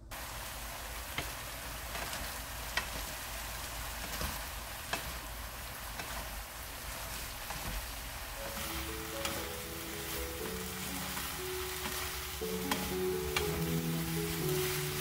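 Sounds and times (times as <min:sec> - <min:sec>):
vegetables sizzling in a frying pan: 0:00.0 - 0:15.0
spatula clicking against pan: 0:11.1 - 0:13.7.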